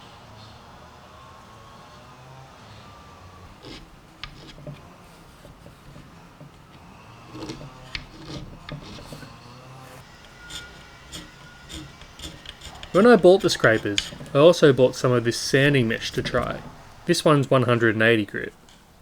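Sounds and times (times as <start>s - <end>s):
scraper blade scraping wood: 2.6s - 17.8s.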